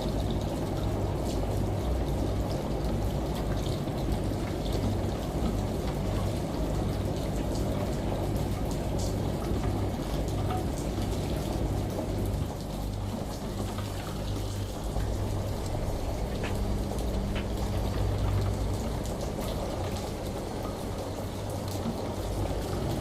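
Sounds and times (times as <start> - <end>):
steady rain hiss: 0.0 - 23.0
washing machine humming: 0.0 - 23.0
water drips ticking: 0.0 - 23.0.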